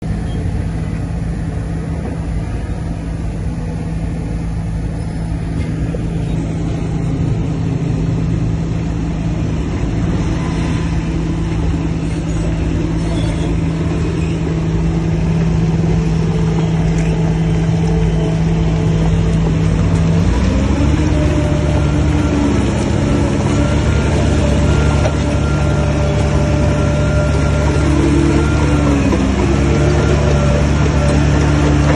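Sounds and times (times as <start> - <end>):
heavy diesel engine running: 0.0 - 31.9.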